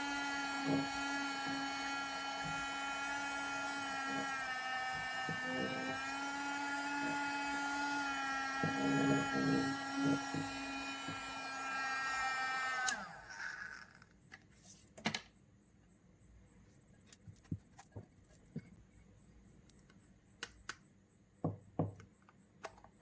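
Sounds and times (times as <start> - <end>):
small motor whining: 0.0 - 14.1.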